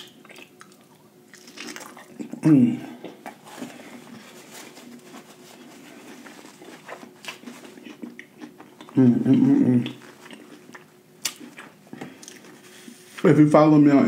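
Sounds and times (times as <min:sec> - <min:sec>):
small crunches: 0:00.0 - 0:02.4, 0:03.1 - 0:12.6
man chewing: 0:00.0 - 0:13.2
man humming mmm: 0:02.2 - 0:03.2, 0:08.8 - 0:10.0.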